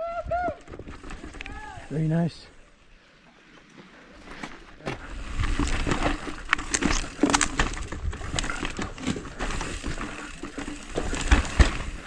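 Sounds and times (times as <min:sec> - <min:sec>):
bike rattling over rocks: 0:00.6 - 0:02.6, 0:04.1 - 0:12.0.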